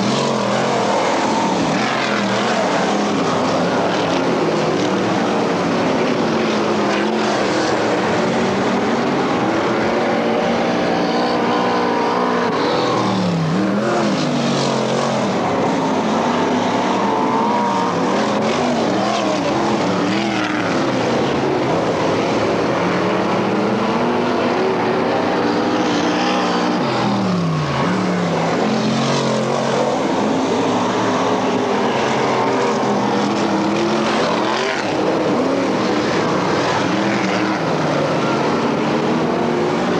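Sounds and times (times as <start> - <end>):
race car engines: 0.0 - 39.9.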